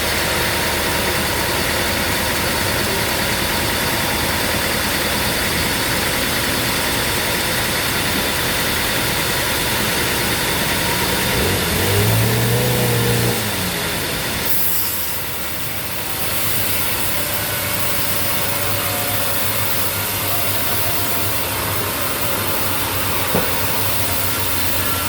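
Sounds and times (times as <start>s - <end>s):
sawmill machinery running: 0.0s - 25.0s
deep motor tone: 9.8s - 14.7s, 15.6s - 25.0s.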